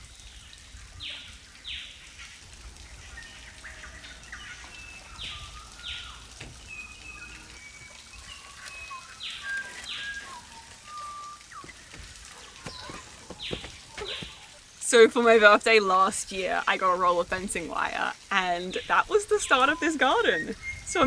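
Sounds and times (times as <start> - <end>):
birds with quick falling calls: 3.9 - 14.7.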